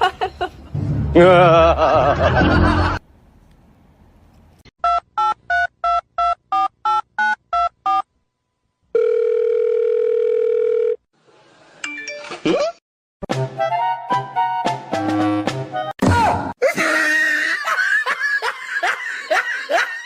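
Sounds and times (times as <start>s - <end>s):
telephone ringback tone: 9.0s - 11.0s
music: 13.2s - 16.0s.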